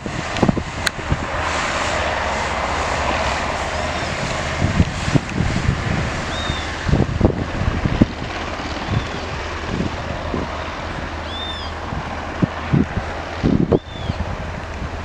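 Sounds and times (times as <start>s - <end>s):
distant aircraft engine rushing: 0.0s - 15.0s
wind thumps on microphone: 0.0s - 15.0s.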